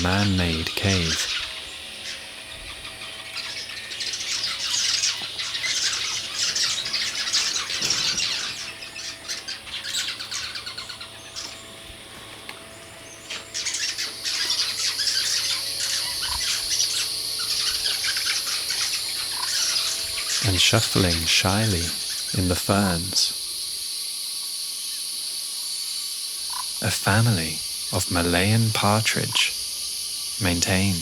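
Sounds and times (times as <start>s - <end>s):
swiftlets twittering: 0.0s - 23.4s
high-pitched buzz: 0.0s - 23.8s.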